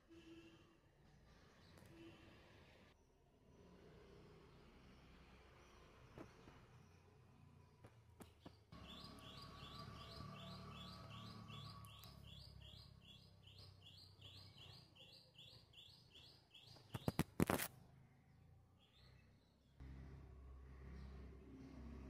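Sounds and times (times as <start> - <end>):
bird chirping: 8.2 - 17.6, 18.8 - 19.8.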